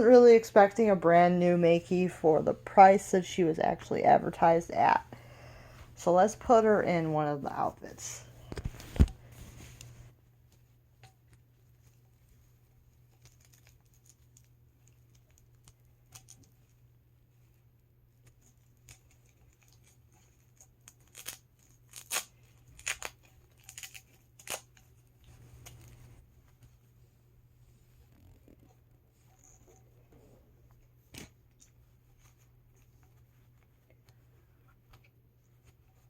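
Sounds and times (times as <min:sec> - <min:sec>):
sharp tearing rasps: 0:20.9 - 0:24.7.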